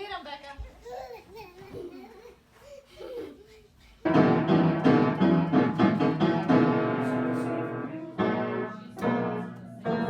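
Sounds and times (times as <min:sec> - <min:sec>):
piano chords: 0:04.1 - 0:10.0.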